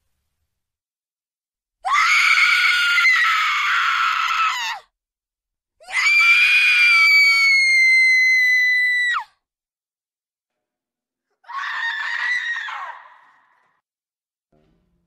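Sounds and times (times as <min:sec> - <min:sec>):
high-pitched horror screams: 0:11.4 - 0:13.7.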